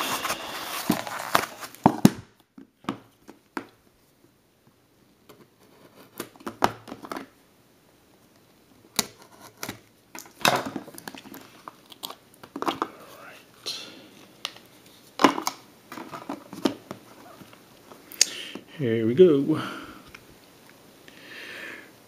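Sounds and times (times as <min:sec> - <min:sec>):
packaging rustling: 0:00.0 - 0:02.2.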